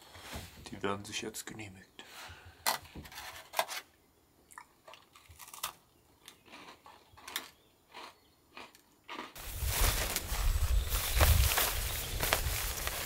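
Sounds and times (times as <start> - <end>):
cookies crunching and chewing: 4.5 - 9.4.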